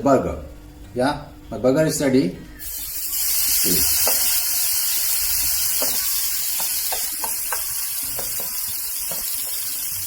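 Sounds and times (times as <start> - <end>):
burger patty sizzling in pan: 2.6 - 10.0.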